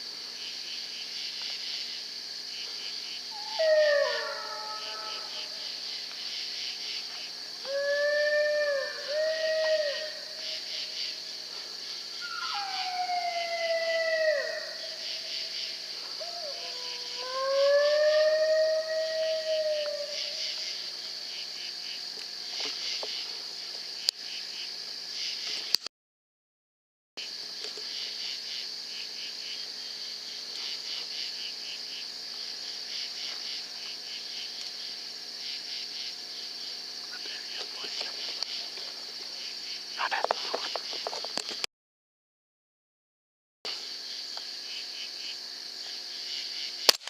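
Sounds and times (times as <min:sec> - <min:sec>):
insects chirring: 0:00.0 - 0:25.8, 0:27.2 - 0:41.7, 0:43.7 - 0:47.0
coyote howling: 0:03.3 - 0:05.6, 0:07.6 - 0:10.7, 0:12.2 - 0:15.4, 0:16.2 - 0:20.6.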